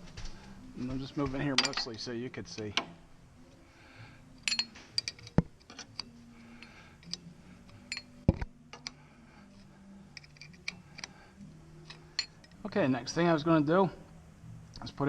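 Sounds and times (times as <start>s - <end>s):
metallic clicks of hand tools: 4.4s - 6.2s, 10.2s - 11.1s.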